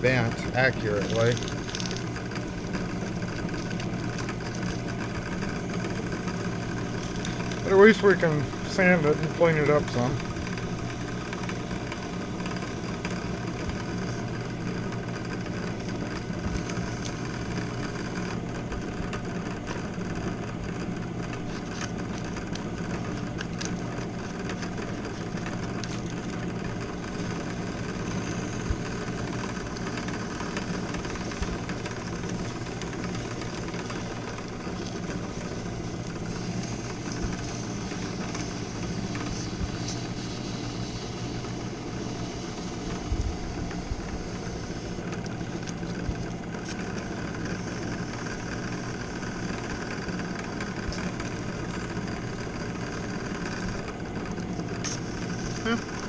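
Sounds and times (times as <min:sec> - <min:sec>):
drill press motor hum: 0:00.0 - 0:56.0
sandpaper sanding hiss: 0:36.3 - 0:43.0.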